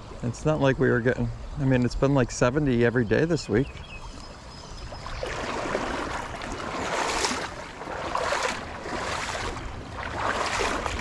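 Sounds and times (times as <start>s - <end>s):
fast-flowing creek rushing: 5.2s - 11.0s.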